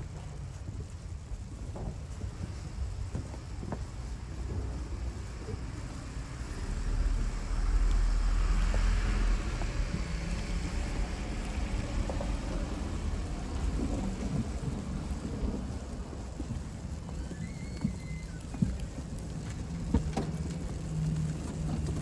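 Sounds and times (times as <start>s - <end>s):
wind rumble on microphone: 0.0s - 22.0s
vehicle passing with tyre hiss: 4.6s - 16.3s.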